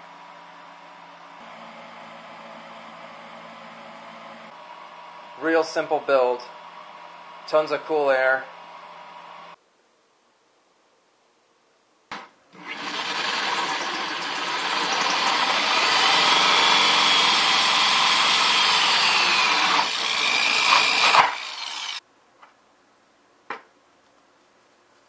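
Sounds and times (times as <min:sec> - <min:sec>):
drill hole saw cutting plastic: 0:12.6 - 0:22.0.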